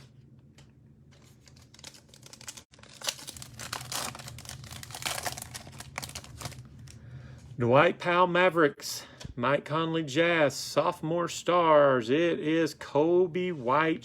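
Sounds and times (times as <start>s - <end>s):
plastic foil wrapper tearing and crinkling: 1.1s - 7.0s.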